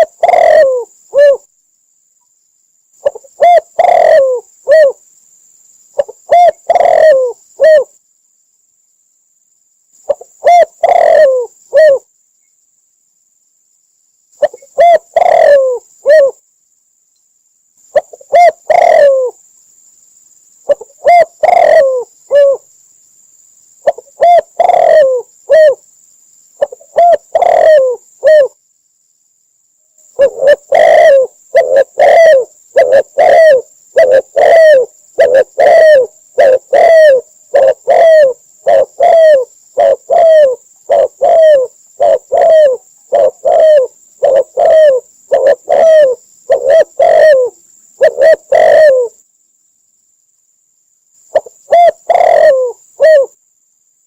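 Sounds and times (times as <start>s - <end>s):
dove cooing: 0.0s - 1.5s, 3.0s - 5.0s, 6.0s - 8.0s, 10.1s - 12.1s, 14.4s - 16.4s, 18.0s - 19.4s, 20.7s - 22.7s, 23.8s - 25.8s, 26.6s - 28.6s, 30.2s - 49.2s, 51.3s - 53.4s.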